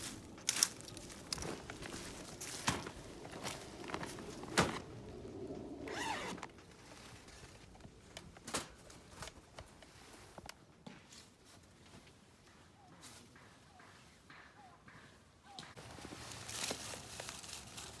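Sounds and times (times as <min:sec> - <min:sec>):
rustling: 0:00.0 - 0:10.5, 0:15.8 - 0:18.0
zipper being pulled: 0:05.8 - 0:06.5.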